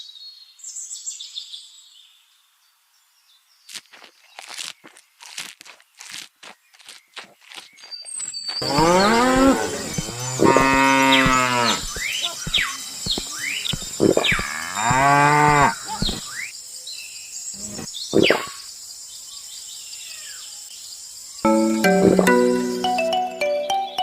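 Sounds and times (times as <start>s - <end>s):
cow mooing: 8.6s - 12.0s, 14.3s - 16.1s.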